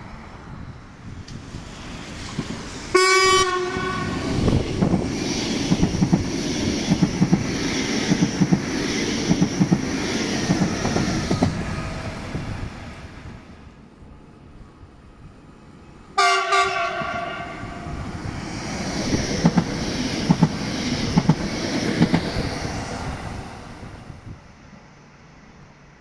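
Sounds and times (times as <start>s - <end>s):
train rumbling past: 0.0s - 26.0s
train horn: 2.9s - 4.3s, 16.2s - 18.0s.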